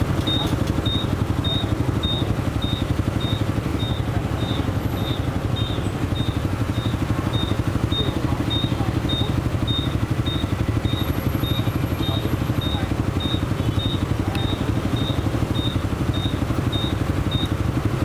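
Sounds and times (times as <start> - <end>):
motorcycle engine throbbing: 0.0 - 18.0.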